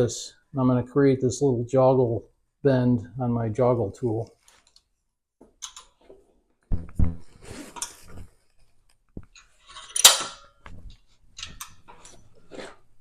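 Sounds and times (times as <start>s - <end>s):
heavy thumps: 6.7s - 7.5s.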